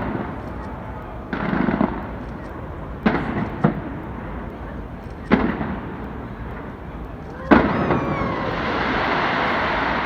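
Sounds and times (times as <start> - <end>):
firework sharp bangs: 0.0 - 2.2, 3.0 - 4.4, 5.2 - 6.7, 7.5 - 10.0
firework shell rumbling burst: 5.3 - 6.0, 7.5 - 10.0.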